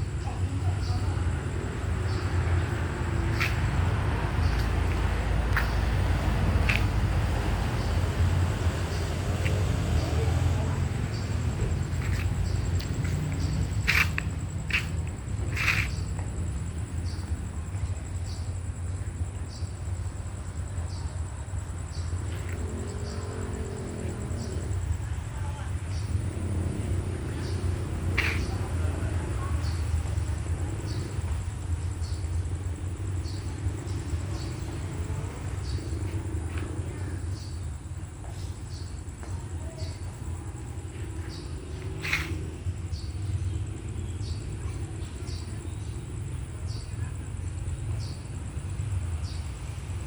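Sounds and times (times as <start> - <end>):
insects trilling: 0.0 - 50.0
short insect chirps: 2.1 - 8.0, 8.8 - 17.4, 25.9 - 31.2, 39.7 - 44.4.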